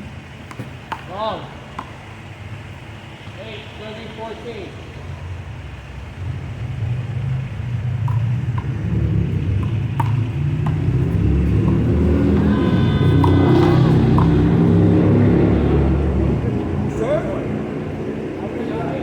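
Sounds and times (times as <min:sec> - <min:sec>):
low vehicle rumble: 0:04.7 - 0:19.0
handball slapping wall: 0:09.6 - 0:12.5.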